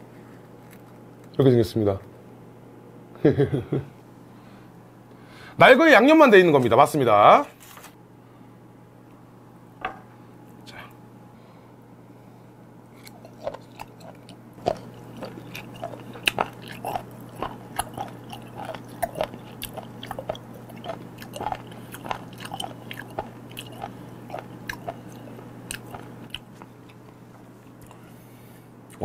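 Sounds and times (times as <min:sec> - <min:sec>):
person crunching food: 0:00.3 - 0:01.4, 0:13.0 - 0:28.1.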